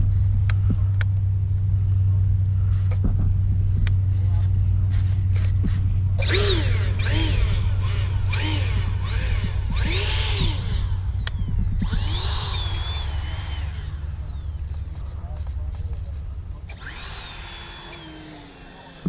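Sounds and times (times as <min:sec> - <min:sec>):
steady low hum: 0:00.0 - 0:19.0
model airplane motor whining: 0:04.0 - 0:19.0.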